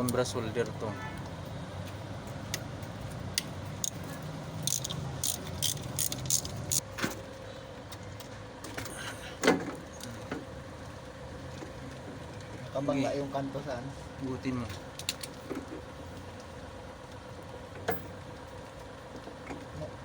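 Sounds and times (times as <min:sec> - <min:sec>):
small metal parts clicking and clinking: 0:03.7 - 0:06.8.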